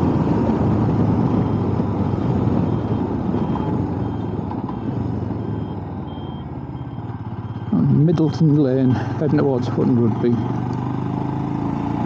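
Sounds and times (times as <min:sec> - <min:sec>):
wind rush: 0:00.0 - 0:05.3
motorcycle engine running: 0:00.0 - 0:12.0
faint high beeps: 0:02.6 - 0:10.6.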